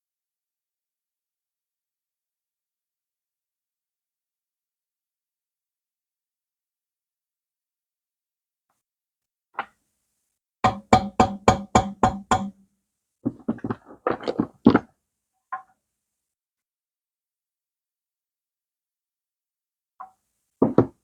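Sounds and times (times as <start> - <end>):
hand tool tapping on metal: 10.6 - 12.6.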